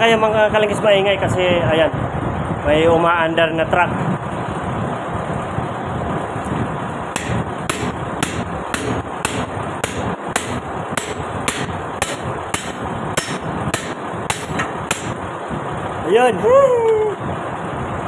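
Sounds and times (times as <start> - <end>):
truck engine running: 4.3 - 16.0
hammer blows on steel: 7.2 - 15.2.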